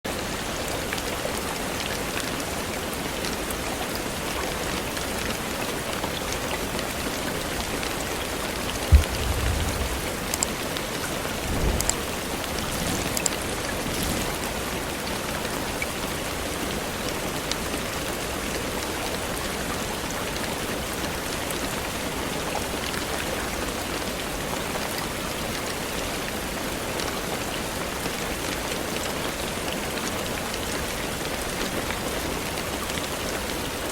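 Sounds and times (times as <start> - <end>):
heavy rain: 0.1 - 33.9
low thud and rumble: 8.7 - 10.6, 11.4 - 12.2.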